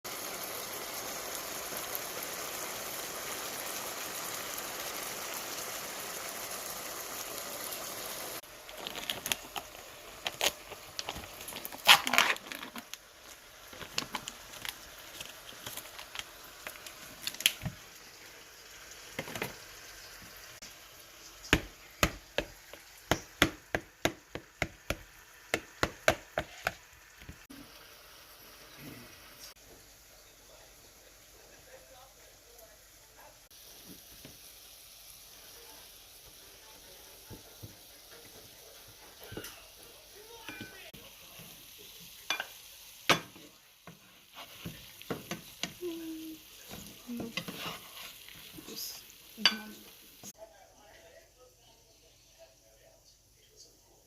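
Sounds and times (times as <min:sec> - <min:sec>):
crunching and chewing: 0:08.6 - 0:13.0.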